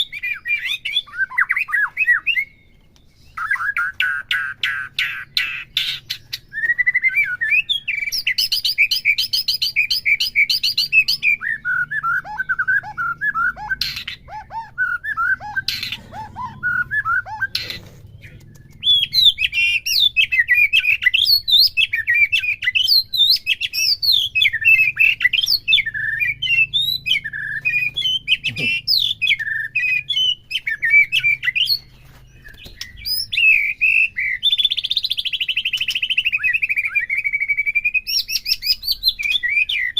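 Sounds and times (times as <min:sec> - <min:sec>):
songbird singing: 0:00.0 - 0:39.9
sharp bird clicks: 0:17.5 - 0:20.5, 0:34.6 - 0:36.5.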